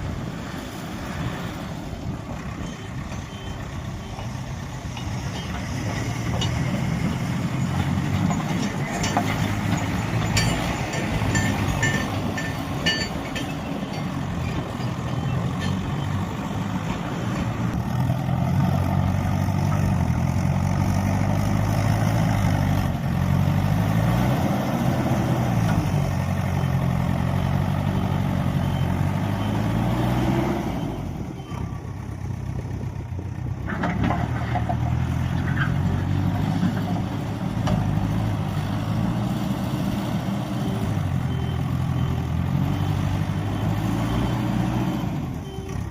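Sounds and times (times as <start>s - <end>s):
heavy diesel engine revving: 13.9s - 31.9s, 34.0s - 45.9s.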